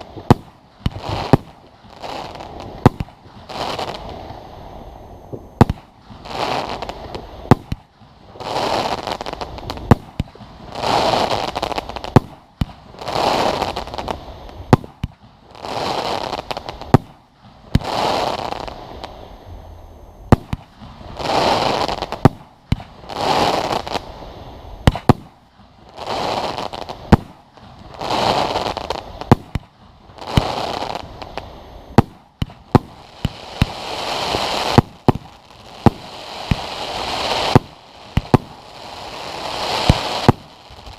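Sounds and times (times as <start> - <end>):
firework crackling: 0.0 - 40.9
firework shells bursting: 5.3 - 8.0, 24.8 - 25.4, 26.3 - 40.9.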